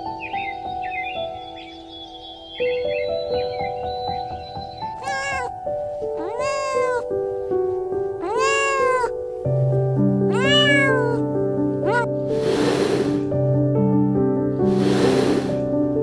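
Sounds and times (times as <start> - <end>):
soft piano music: 0.0 - 16.0
cat meowing: 5.0 - 7.2, 8.2 - 9.2, 10.2 - 12.1
hiss-like rush of noise: 12.3 - 13.4, 14.6 - 15.8.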